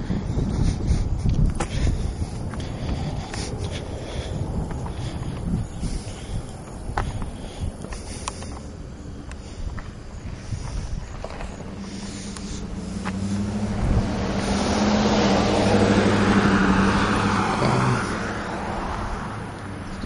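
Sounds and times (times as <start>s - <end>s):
vehicle passing by: 10.3s - 20.0s.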